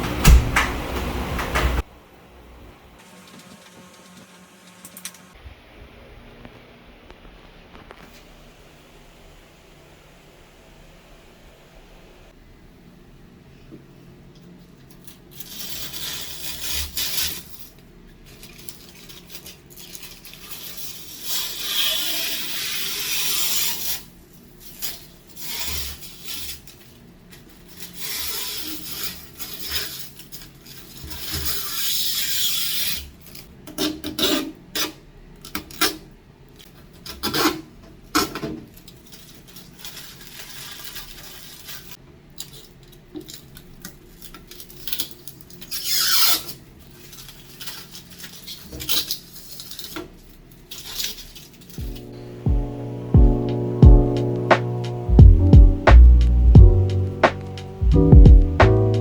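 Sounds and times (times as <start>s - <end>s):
sharp knocks and clatter: 0.0s - 1.9s
rubbing and scraping: 15.3s - 35.0s, 36.9s - 42.0s.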